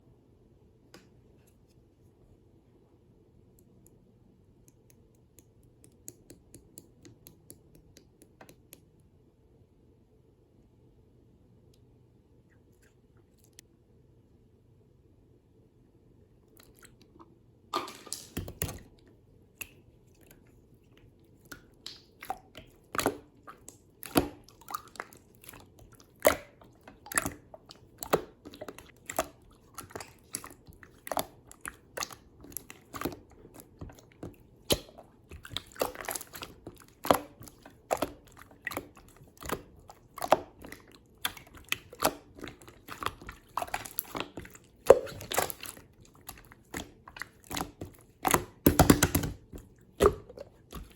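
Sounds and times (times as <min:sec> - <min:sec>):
slime squeezed with wet pops: 0:21.4 - 0:50.9.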